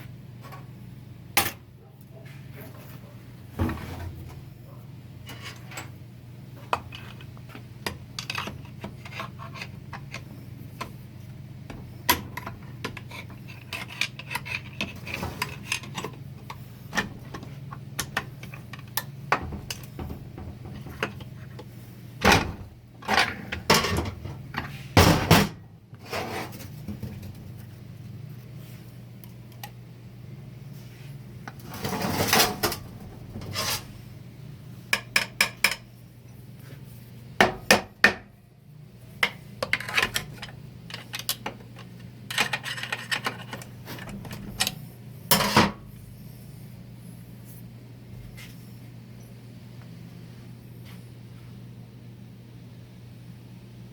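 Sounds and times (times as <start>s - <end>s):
steady low hum: 0.0s - 53.9s
metal parts and tools clinking: 39.2s - 44.7s.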